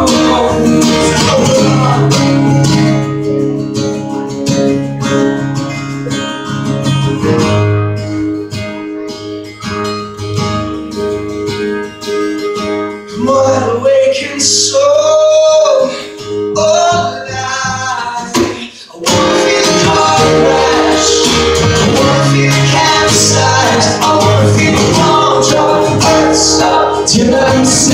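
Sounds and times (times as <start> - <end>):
man singing: 0.0 - 2.9, 13.1 - 27.9
acoustic guitar strumming: 0.0 - 27.9.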